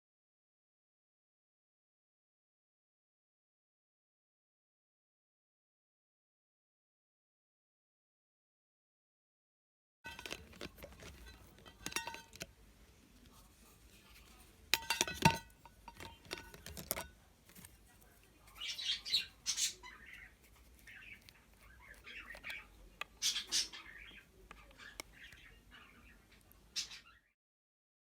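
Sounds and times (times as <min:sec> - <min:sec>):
small objects clicking and clinking: 0:10.1 - 0:12.5, 0:14.8 - 0:18.0
rustling: 0:10.1 - 0:25.4.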